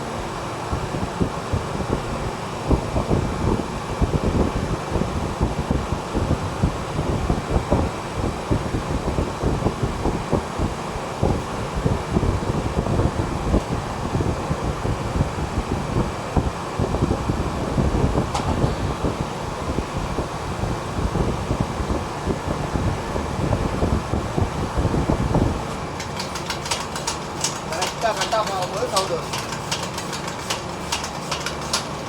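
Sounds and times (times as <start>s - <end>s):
refrigeration machine hum: 0.0s - 32.0s
wind rumbling on microphone: 0.1s - 26.0s
fast regular ticking: 25.9s - 32.0s.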